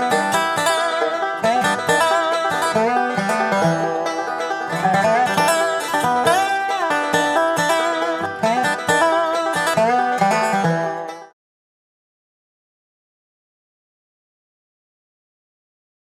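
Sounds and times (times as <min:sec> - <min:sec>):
bluegrass music with banjo: 0:00.0 - 0:11.3.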